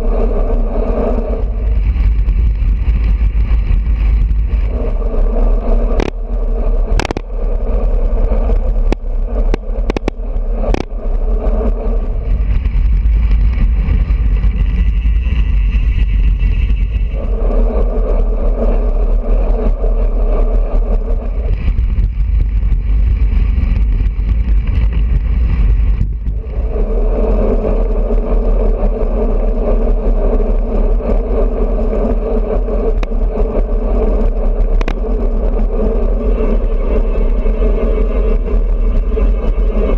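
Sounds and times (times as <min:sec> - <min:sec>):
road and tyre noise: 0:00.0 - 0:39.9
wind rumbling over microphone: 0:00.0 - 0:39.9
sharp clicks: 0:06.9 - 0:07.3, 0:08.5 - 0:11.0.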